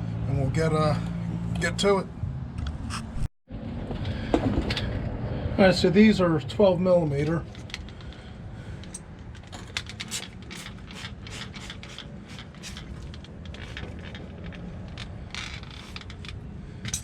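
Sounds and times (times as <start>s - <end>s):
ratchet wrench ratcheting: 8.8s - 17.0s.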